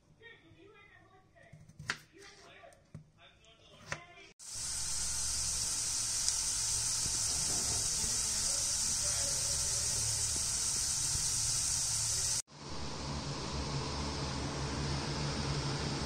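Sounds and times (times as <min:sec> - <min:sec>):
potatoes sizzling in oil: 0:04.4 - 0:12.4.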